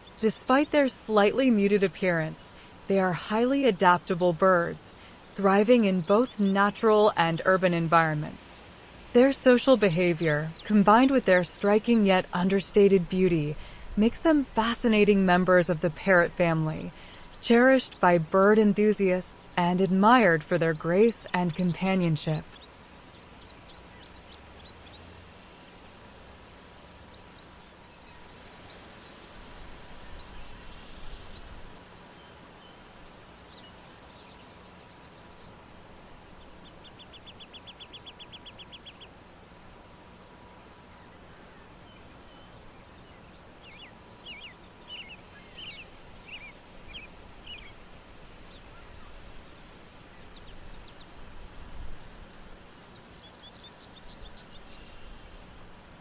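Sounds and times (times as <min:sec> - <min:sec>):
birds chirping: 0:00.0 - 0:51.3, 0:51.9 - 0:56.0
outdoor background noise: 0:00.0 - 0:56.0.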